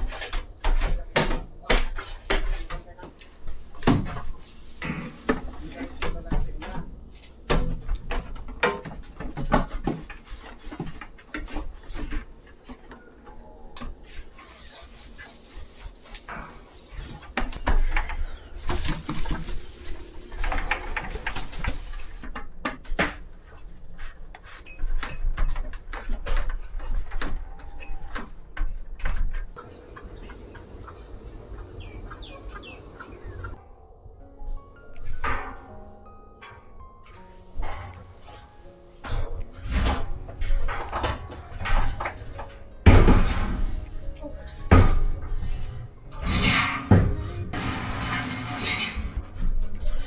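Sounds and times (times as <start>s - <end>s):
objects knocking and clattering: 0.0s - 29.6s, 36.4s - 50.0s
rubbing or wiping noise: 1.9s - 6.2s, 8.9s - 12.6s, 14.0s - 22.2s.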